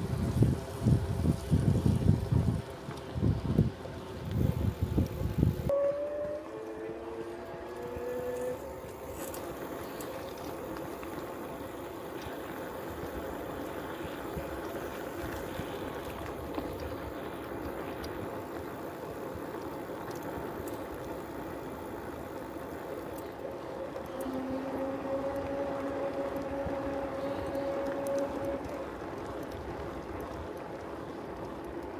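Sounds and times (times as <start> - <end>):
bicycle tyres rolling on road: 0.0 - 5.8, 6.4 - 31.9
low hum: 0.0 - 31.9.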